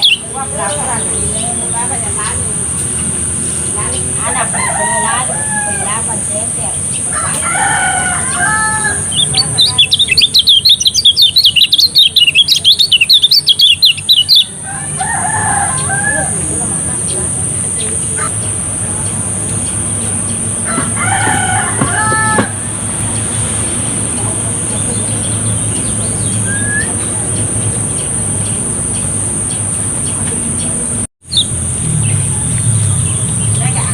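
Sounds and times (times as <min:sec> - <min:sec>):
bird twittering: 0:00.0 - 0:33.9
rooster crowing: 0:04.2 - 0:09.5, 0:14.6 - 0:16.9, 0:20.6 - 0:23.5.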